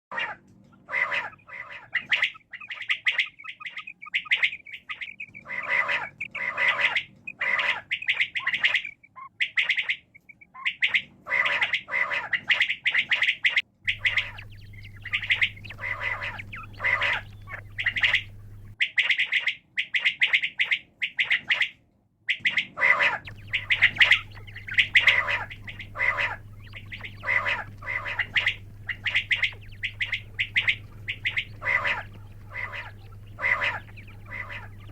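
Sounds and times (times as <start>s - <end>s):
quail calling: 0.1s - 21.7s, 22.3s - 34.9s
low steady hum: 13.9s - 18.8s, 23.2s - 34.9s.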